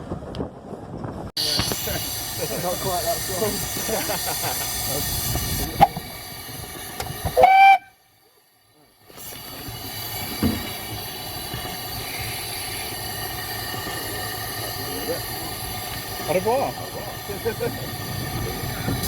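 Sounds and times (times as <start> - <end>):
steam locomotive whistle: 7.2 - 8.0.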